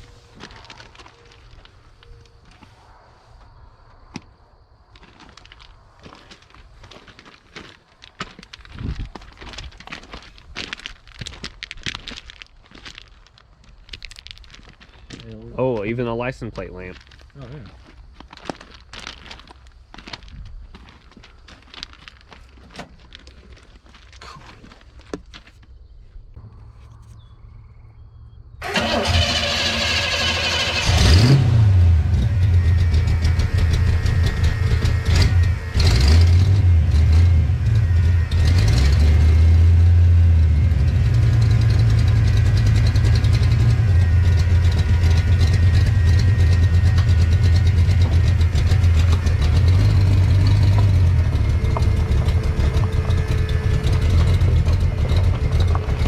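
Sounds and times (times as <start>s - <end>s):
pickup engine revving and idling: 28.6s - 56.0s
starter cranking engine: 28.6s - 56.0s.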